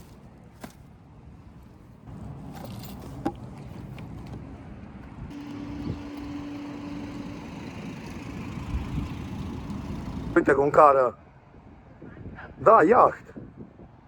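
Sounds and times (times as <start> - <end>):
road vehicle rumble: 0.0 - 12.6.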